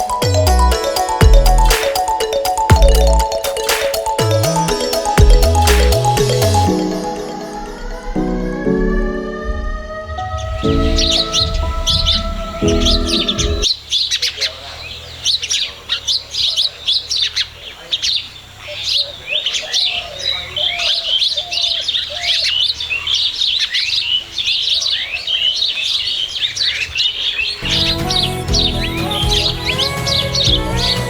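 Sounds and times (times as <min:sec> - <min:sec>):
background music: 0:00.0 - 0:13.7, 0:27.6 - 0:31.0
small birds chirping: 0:10.1 - 0:31.0.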